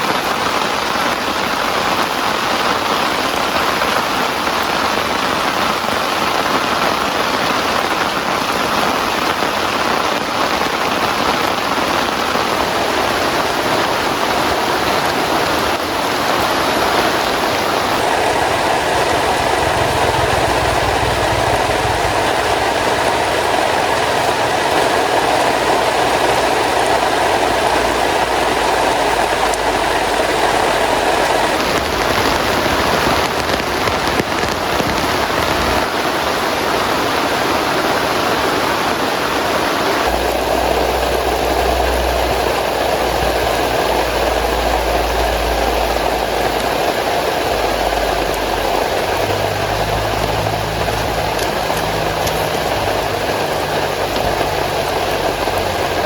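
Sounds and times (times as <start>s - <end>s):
heavy rain on tent canopy: 0.0s - 56.0s
low rumble: 16.0s - 35.8s, 40.1s - 56.0s.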